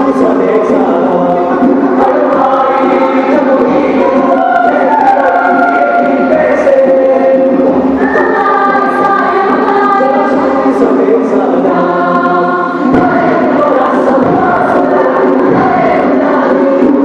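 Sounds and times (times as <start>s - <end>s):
choir singing in harmony: 0.0s - 17.0s.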